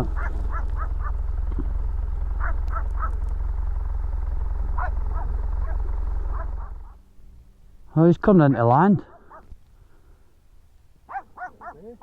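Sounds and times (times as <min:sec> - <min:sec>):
dog barking: 0:00.1 - 0:01.2, 0:02.4 - 0:03.2, 0:04.8 - 0:06.8, 0:09.0 - 0:09.5, 0:11.1 - 0:12.0.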